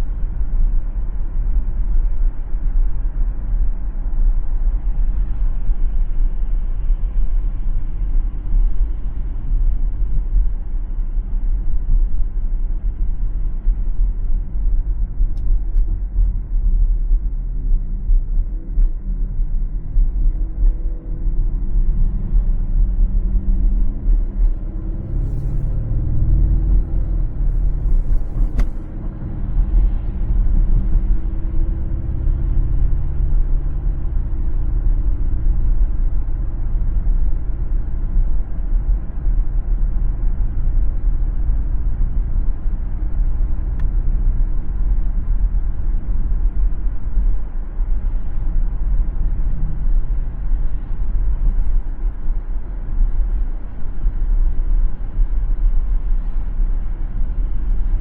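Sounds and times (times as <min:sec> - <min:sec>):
car tyres and engine rumble: 0:00.0 - 0:58.0
humming drone: 0:17.7 - 0:35.8.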